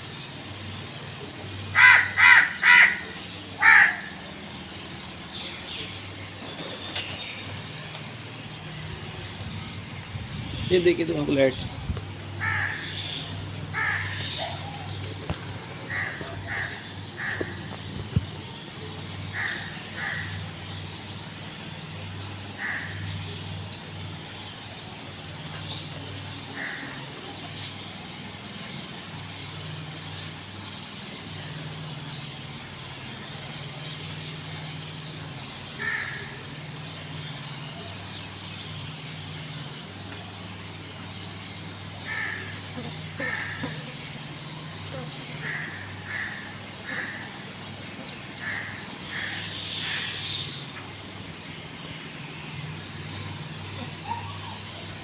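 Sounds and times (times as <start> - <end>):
crow cawing: 1.7 - 4.3, 12.4 - 13.0, 13.7 - 14.5, 15.9 - 17.6, 19.3 - 20.4, 22.6 - 23.1, 26.6 - 27.1, 35.8 - 36.4, 42.0 - 43.9, 45.4 - 47.4, 48.4 - 50.6.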